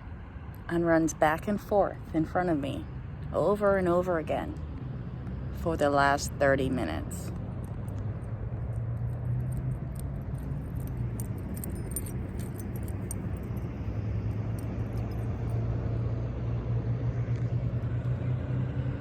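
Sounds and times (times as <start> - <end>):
low engine hum: 0.0 - 19.0
metal jingling: 9.1 - 15.6.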